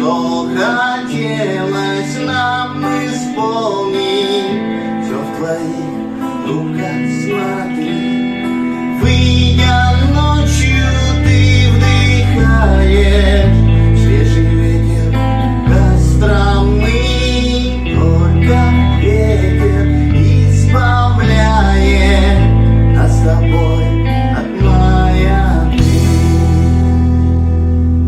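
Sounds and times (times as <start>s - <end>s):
band music: 24.2s - 28.0s.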